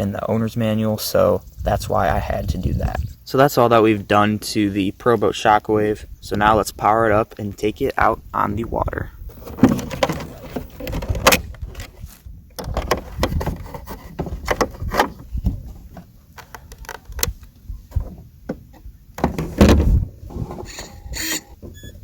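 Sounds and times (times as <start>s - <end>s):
knocks clicks and rustling: 9.3s - 12.0s, 12.6s - 21.8s.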